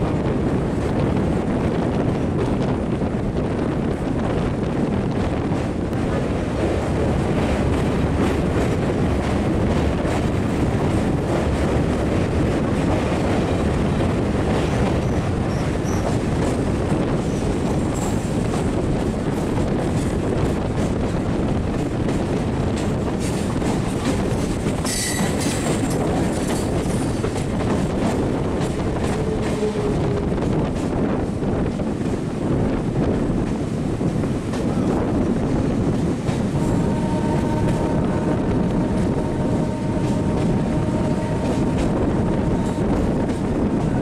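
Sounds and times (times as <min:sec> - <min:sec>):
passing train: 0:00.0 - 0:44.0
train running with wheel clatter: 0:00.0 - 0:44.0
high-pitched wheel squeal: 0:24.9 - 0:25.6.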